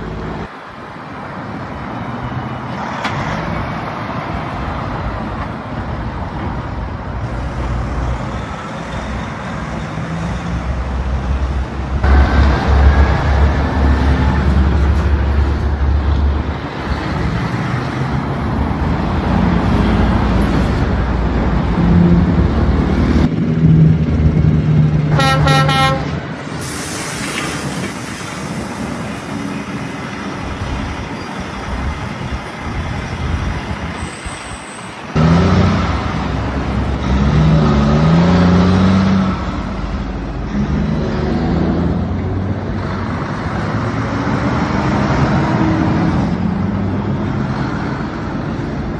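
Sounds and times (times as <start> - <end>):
heavy truck engines: 0.0 - 48.9
road noise: 0.0 - 48.9
horn tooting: 25.1 - 26.8.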